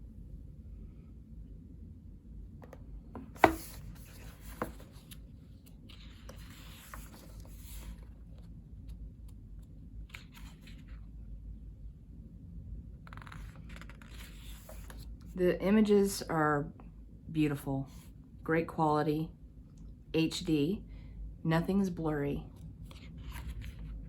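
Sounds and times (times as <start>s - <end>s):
paper pages rustling: 3.2s - 8.5s, 10.1s - 11.0s, 13.1s - 15.1s, 22.9s - 24.0s.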